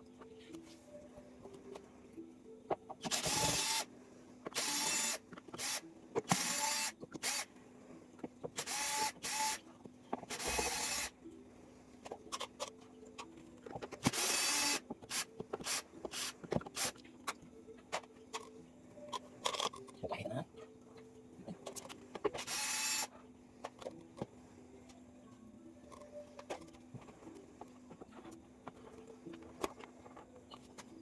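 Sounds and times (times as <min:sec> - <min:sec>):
electric screwdriver running in bursts: 0:03.1 - 0:03.8, 0:04.6 - 0:07.5, 0:08.6 - 0:09.6, 0:10.3 - 0:11.1, 0:14.1 - 0:16.9, 0:22.4 - 0:23.1.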